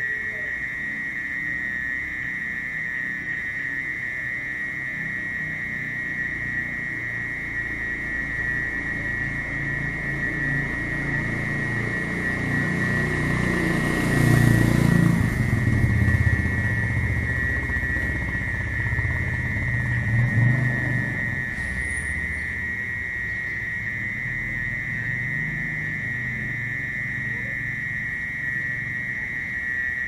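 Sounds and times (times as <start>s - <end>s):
mole cricket trilling: 0.0s - 30.0s
low rumble: 14.7s - 22.8s.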